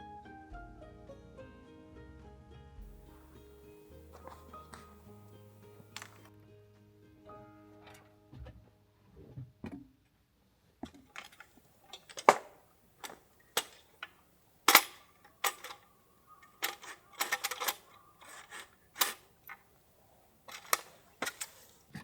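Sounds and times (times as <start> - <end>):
sharp clicks and knocks: 5.8 - 6.3, 10.8 - 19.8, 20.4 - 22.0.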